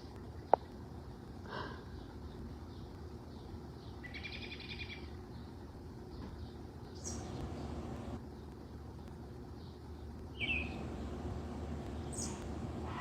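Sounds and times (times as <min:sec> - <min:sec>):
bird trilled call: 0:10.4 - 0:10.9.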